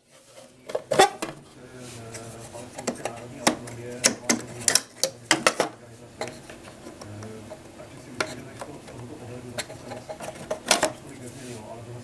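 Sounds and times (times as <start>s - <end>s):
hard objects clicking and knocking: 0.6s - 1.4s, 2.7s - 9.0s, 9.6s - 11.1s.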